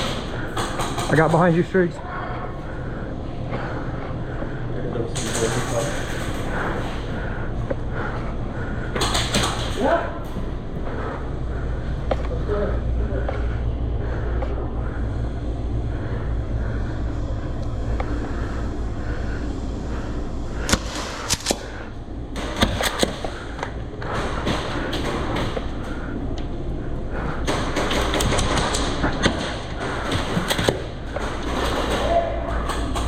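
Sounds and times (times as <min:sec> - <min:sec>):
airsoft guns firing: 0:27.4 - 0:33.0.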